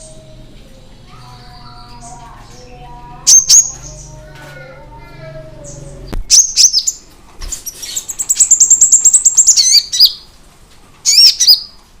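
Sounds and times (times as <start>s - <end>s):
sunbird singing a high trill: 7.8s - 10.2s
sharp looping bird chirps: 8.0s - 10.2s.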